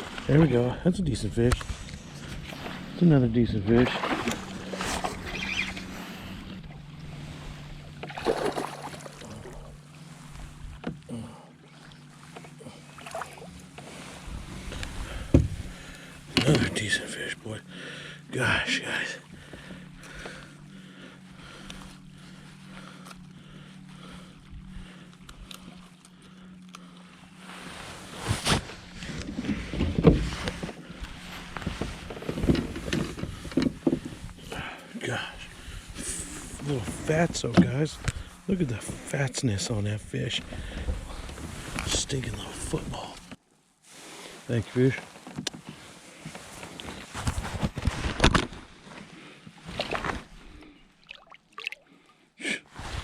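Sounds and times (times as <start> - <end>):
steady low hum: 0.0 - 51.1
knocks and splashes around kayak: 1.3 - 17.7, 19.0 - 52.1
water sloshing: 3.6 - 11.0, 11.6 - 17.0, 48.2 - 52.3
knocks and bumps in kayak: 3.7 - 5.9, 14.4 - 16.8, 28.4 - 30.8, 31.4 - 34.5.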